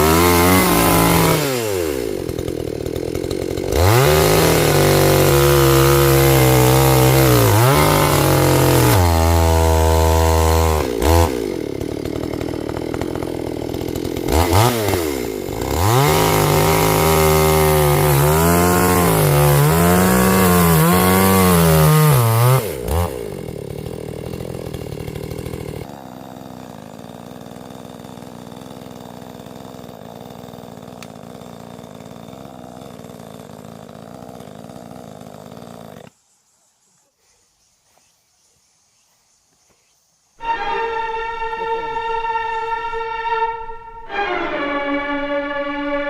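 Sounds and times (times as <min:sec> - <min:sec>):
chainsaw engine idling and revving: 0:00.0 - 0:36.2.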